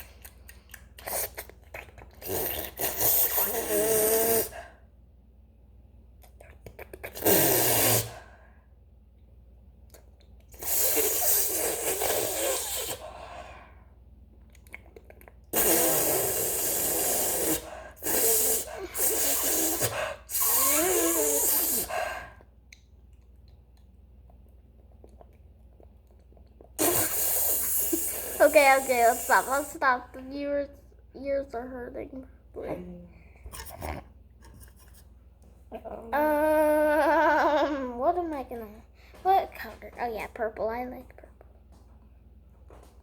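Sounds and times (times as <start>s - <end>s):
harsh breathy vocal noises: 26.8s - 30.0s
child speaking: 28.4s - 33.1s, 37.7s - 41.3s.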